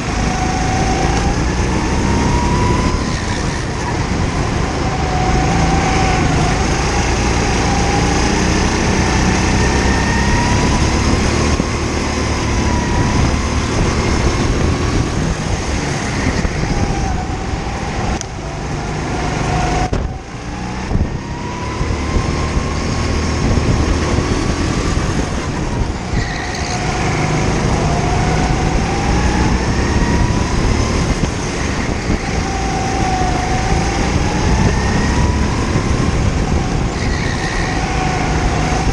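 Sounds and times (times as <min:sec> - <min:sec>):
go-kart engine accelerating: 0:00.0 - 0:38.9.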